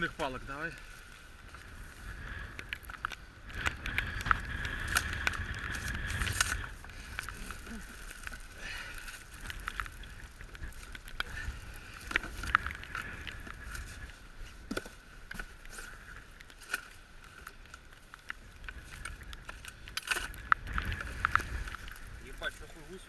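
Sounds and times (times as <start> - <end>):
wind rumble on microphone: 0.0 - 16.5, 17.3 - 23.0.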